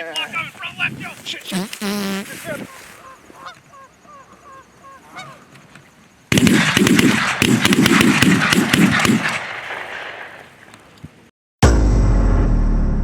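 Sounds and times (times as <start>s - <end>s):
geese honking: 1.5s - 5.5s.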